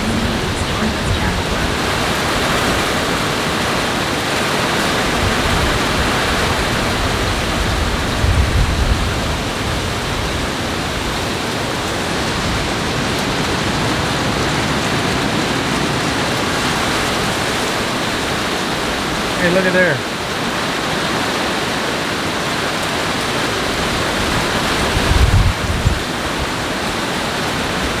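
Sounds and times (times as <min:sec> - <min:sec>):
low rumble: 0:00.0 - 0:02.5
heavy rain pouring: 0:00.0 - 0:28.0.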